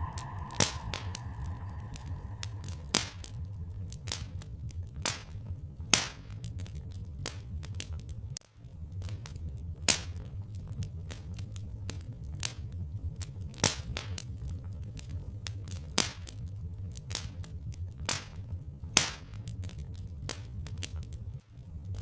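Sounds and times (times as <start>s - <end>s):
low rumble: 0.0s - 4.3s
wood fire crackling and popping: 13.4s - 22.0s.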